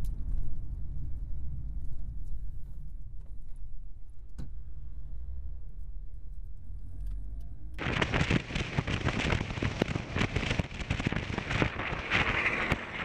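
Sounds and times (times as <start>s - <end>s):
heavy rain on car roof: 7.8s - 13.0s.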